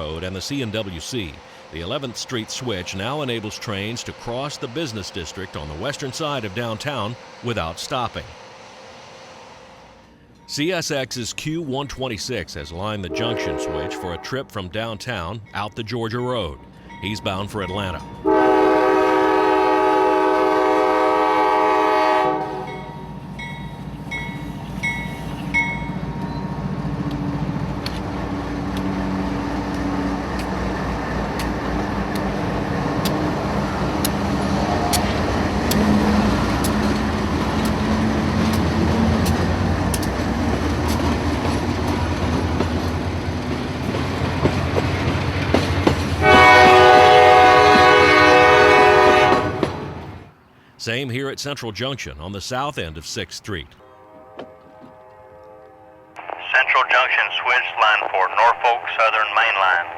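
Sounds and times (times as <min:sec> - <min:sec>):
locomotive engines rumbling: 0:00.0 - 0:50.8, 0:52.0 - 0:59.9
train horn blast: 0:13.0 - 0:14.4, 0:18.2 - 0:22.9, 0:34.5 - 0:39.2, 0:46.2 - 0:50.0, 0:53.8 - 0:56.2.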